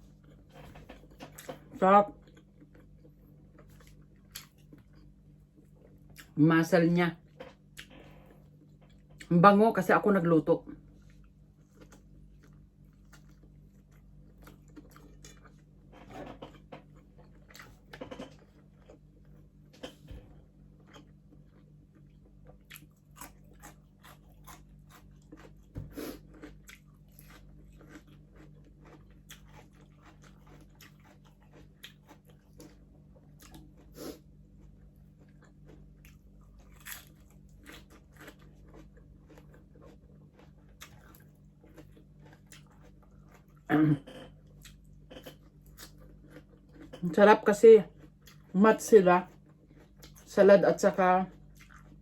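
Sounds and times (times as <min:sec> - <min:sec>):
low steady hum: 0:00.0 - 0:52.0
crunching crispy pork skin: 0:34.8 - 0:43.5.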